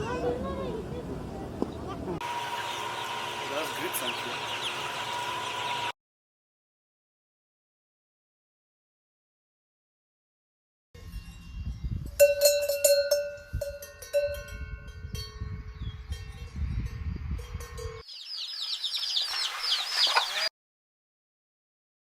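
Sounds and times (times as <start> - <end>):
bird chirps: 1.7 - 5.9, 18.0 - 20.5
metal bells clanking: 11.0 - 18.0.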